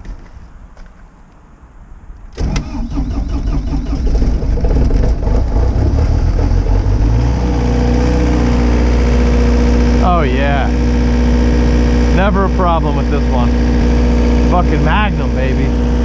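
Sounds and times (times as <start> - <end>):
engine starting and idling: 2.3 - 7.0.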